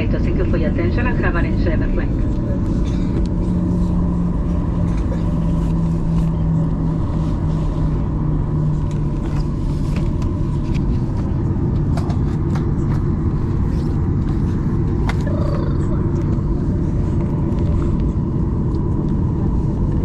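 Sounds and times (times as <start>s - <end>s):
jet engines idling rumble: 0.0s - 20.0s
low hum dropping in pitch: 0.3s - 20.0s.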